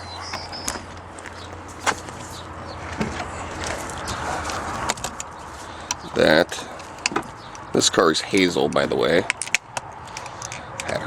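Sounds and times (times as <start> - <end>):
steady low hum: 0.0 - 11.0
metal parts clicking and knocking: 8.3 - 11.0.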